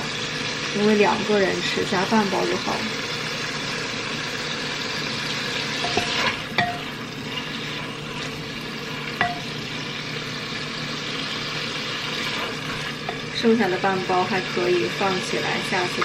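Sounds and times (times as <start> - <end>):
food sizzling in hot oil: 0.0 - 16.0
utensil striking a pan: 5.8 - 7.5, 9.1 - 9.7, 12.2 - 13.4.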